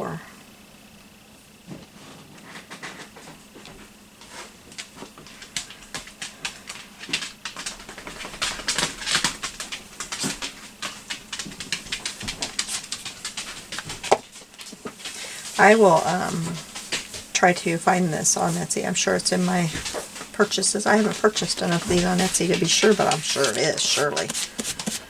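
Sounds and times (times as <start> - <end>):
paper crackling: 4.2 - 25.0
light tapping on paper: 19.1 - 25.0.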